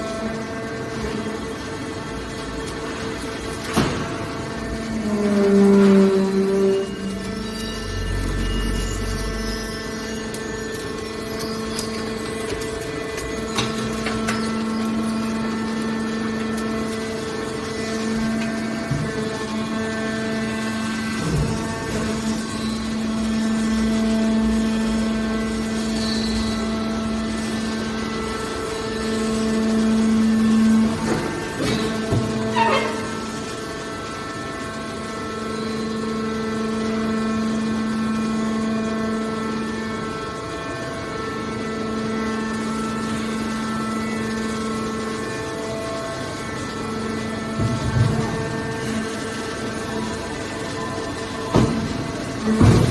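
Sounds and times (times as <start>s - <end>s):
baler power unit humming: 0.0s - 52.9s.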